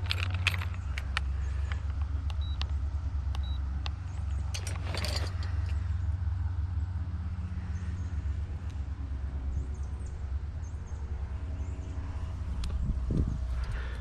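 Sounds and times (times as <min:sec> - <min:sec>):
wind buffeting microphone: 0:12.0 - 0:14.0.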